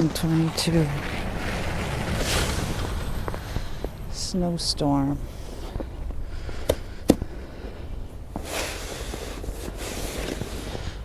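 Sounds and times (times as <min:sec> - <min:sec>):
shovel scraping through snow: 0:00.0 - 0:04.0, 0:08.4 - 0:11.0
snow shovel knocking: 0:00.0 - 0:11.0.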